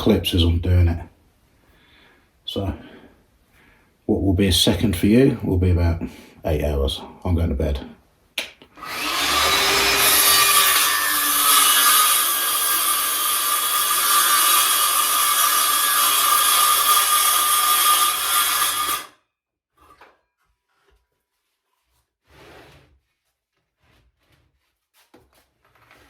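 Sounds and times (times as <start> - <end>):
electric saw cutting timber: 8.8 - 19.2.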